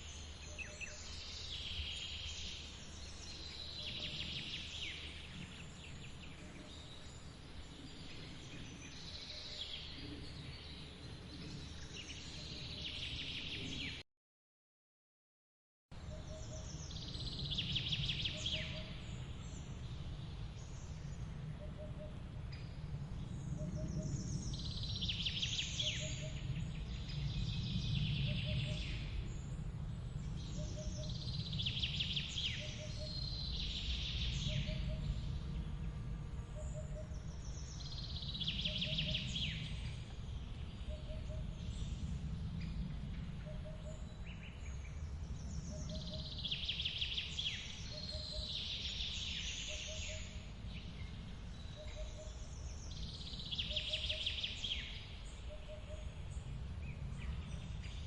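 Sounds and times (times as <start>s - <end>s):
songbirds warbling: 0.0s - 14.0s, 16.0s - 58.0s.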